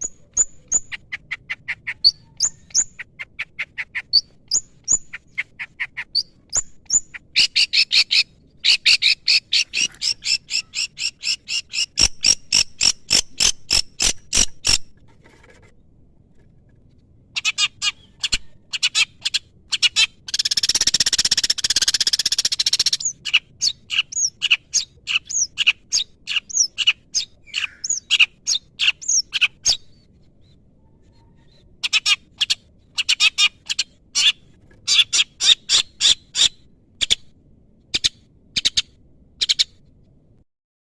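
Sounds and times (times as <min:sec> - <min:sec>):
harsh rasping bird call: 0:07.4 - 0:14.8, 0:26.3 - 0:29.6.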